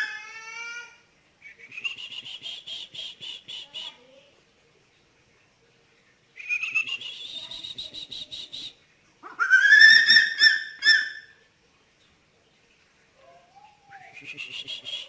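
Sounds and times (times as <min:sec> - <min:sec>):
eagle calling: 0:06.4 - 0:11.4.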